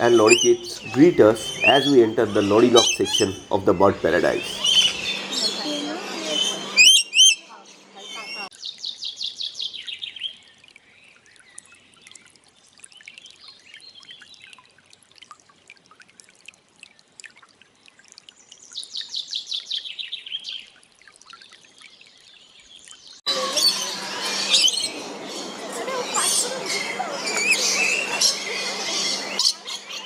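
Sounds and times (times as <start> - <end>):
birds chirping: 0.0 - 8.5, 23.3 - 30.0.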